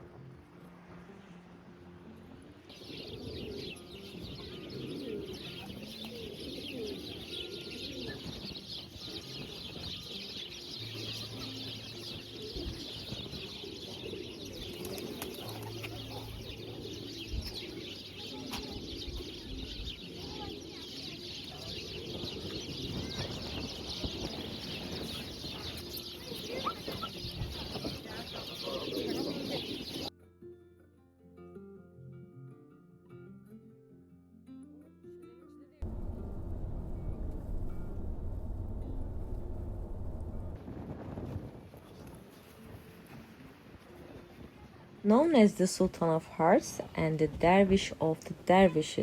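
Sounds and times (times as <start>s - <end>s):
pigeons cooing: 2.7s - 30.1s
small birds chirping: 2.7s - 30.1s.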